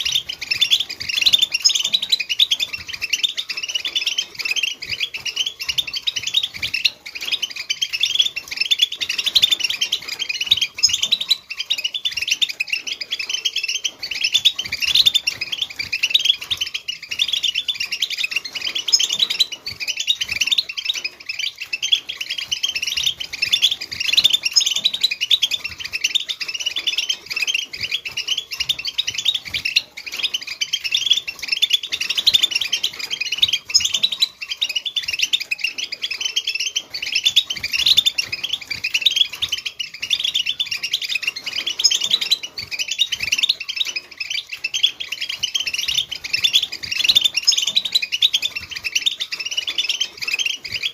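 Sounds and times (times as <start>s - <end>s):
flock of finches twittering: 0.0s - 50.9s.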